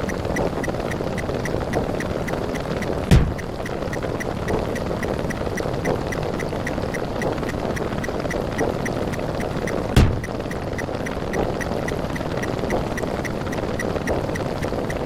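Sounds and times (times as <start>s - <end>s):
rapid counting ticks: 0.0s - 15.0s.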